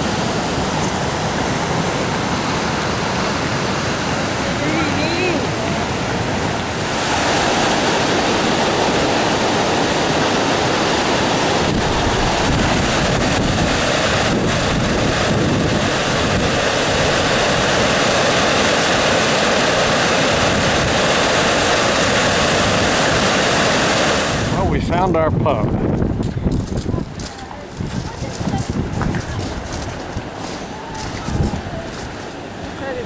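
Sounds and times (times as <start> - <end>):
wind buffeting microphone: 0.0 - 18.3, 24.2 - 33.0
heavy rain: 0.0 - 24.6
wind rushing: 5.2 - 18.1.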